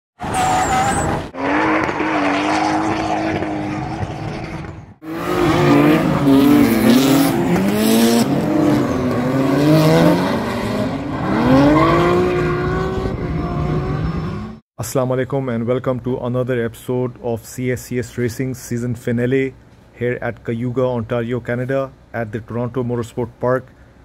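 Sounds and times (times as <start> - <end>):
tire squeal: 0.2 - 7.6, 8.2 - 10.2, 11.1 - 14.6
car engines revving hard: 0.2 - 14.6.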